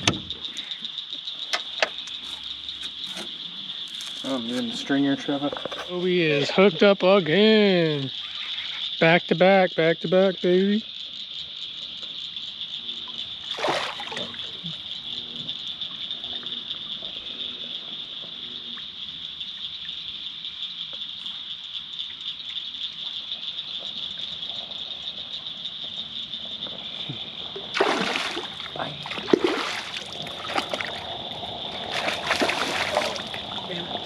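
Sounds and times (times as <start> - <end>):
crickets chirping: 0.0 - 34.0
water splash: 13.4 - 14.7, 27.7 - 34.0.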